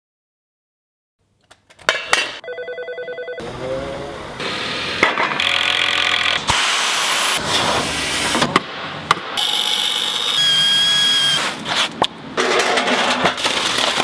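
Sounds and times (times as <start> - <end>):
woodworking machines cutting wood: 4.5 - 6.6, 9.4 - 11.7
pulsing machine buzz: 9.4 - 11.4.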